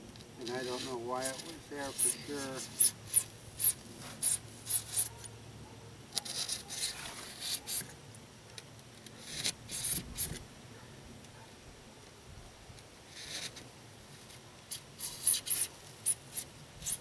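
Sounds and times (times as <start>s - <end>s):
blade cutting foam board: 6.2s - 7.9s.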